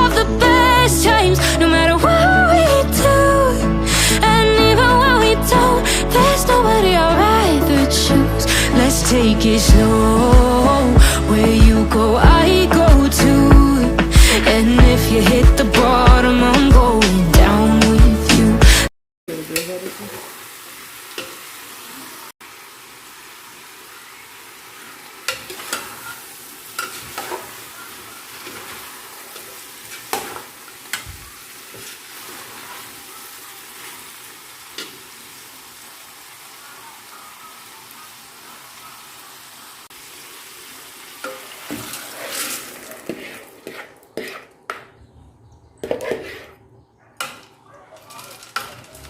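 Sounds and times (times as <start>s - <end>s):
food sizzling in a pan: 19.3s - 44.6s
pot and utensil clatter: 26.8s - 27.5s, 29.4s - 31.2s, 47.2s - 49.0s.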